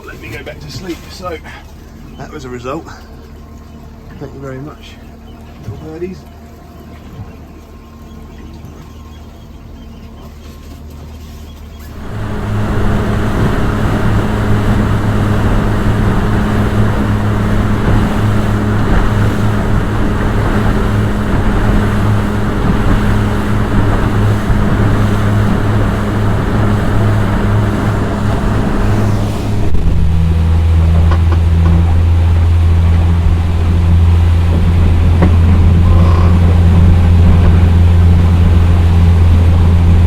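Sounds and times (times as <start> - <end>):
outboard motor droning: 0.0 - 40.0
rushing water: 11.9 - 40.0
wind noise: 11.9 - 40.0.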